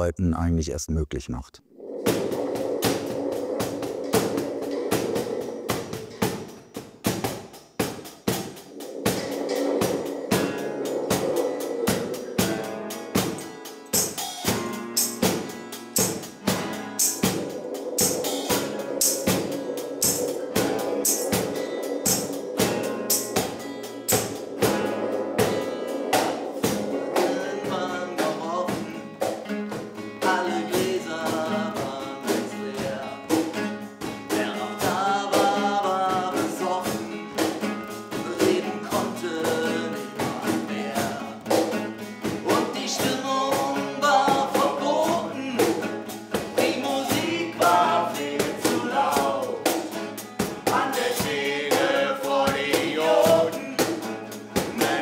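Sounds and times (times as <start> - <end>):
drum-kit beat: 5.8 - 39.6, 41.5 - 55.0
person singing: 26.9 - 29.3, 30.1 - 33.5, 34.2 - 37.2, 38.1 - 41.7, 42.4 - 45.9, 46.6 - 49.9, 50.6 - 55.0.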